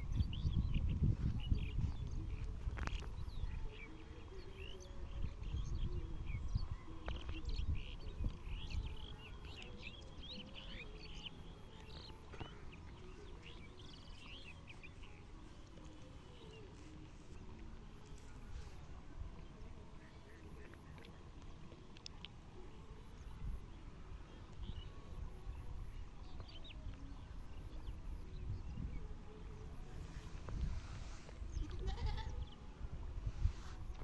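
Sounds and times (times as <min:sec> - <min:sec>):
small birds chirping: 0:00.0 - 0:17.1.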